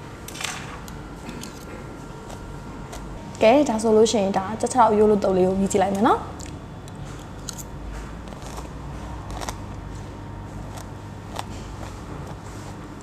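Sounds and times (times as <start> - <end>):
quiet chewing: 2.2 - 3.1, 8.2 - 13.0.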